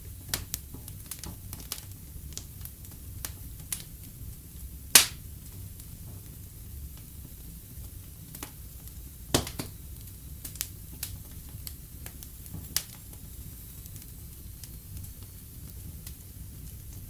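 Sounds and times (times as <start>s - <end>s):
low rumble of fire: 0.0s - 17.0s
wood fire crackling: 0.0s - 17.0s.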